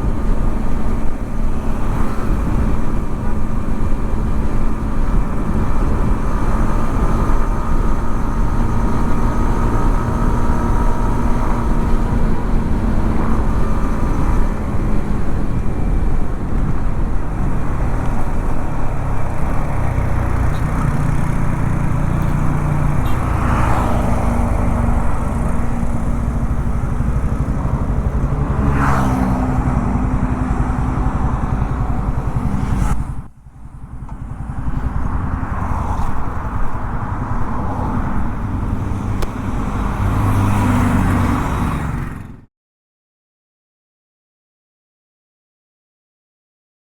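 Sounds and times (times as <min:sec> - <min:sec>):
motorcycle engine running: 0:00.0 - 0:42.5
road noise: 0:00.0 - 0:42.5.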